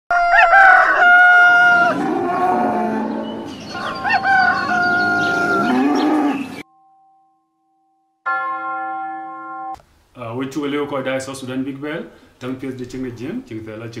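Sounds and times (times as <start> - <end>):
farm animal calls: 0.1 - 6.6.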